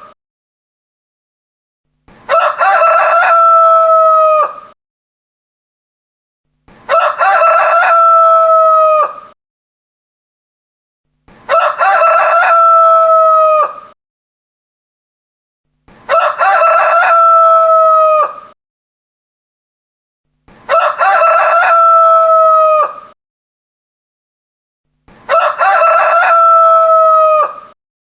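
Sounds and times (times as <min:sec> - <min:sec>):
rooster crowing: 0:02.3 - 0:04.8, 0:06.9 - 0:09.4, 0:11.5 - 0:14.0, 0:16.1 - 0:18.6, 0:20.7 - 0:23.2, 0:25.3 - 0:27.8.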